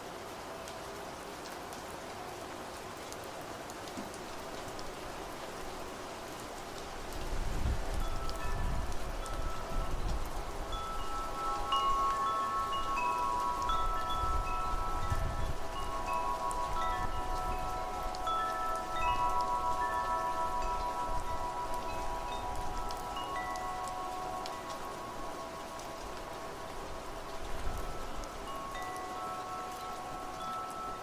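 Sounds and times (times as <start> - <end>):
rain hiss: 0.0 - 31.0
low wind rumble: 7.0 - 28.9
wind chimes ringing: 7.5 - 31.0.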